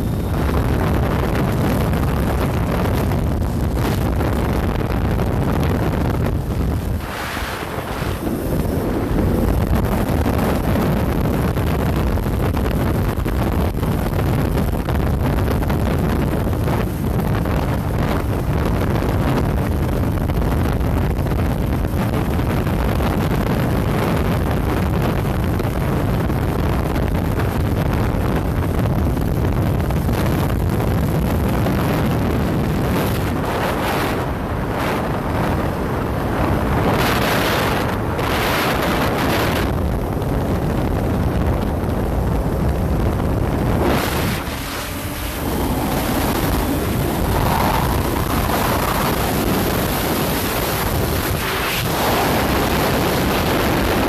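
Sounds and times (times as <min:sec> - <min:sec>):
motorcycle engine: 0:00.0 - 0:11.2, 0:40.9 - 0:51.8
road noise: 0:00.0 - 0:23.0, 0:23.8 - 0:54.0
wind rushing over microphone: 0:00.0 - 0:54.0.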